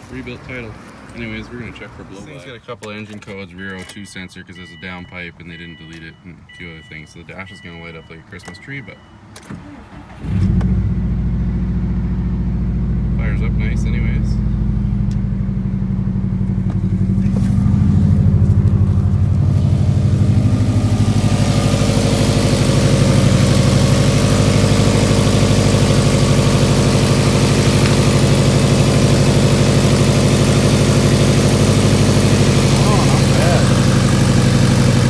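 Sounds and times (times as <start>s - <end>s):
car engine idling: 10.3s - 35.0s.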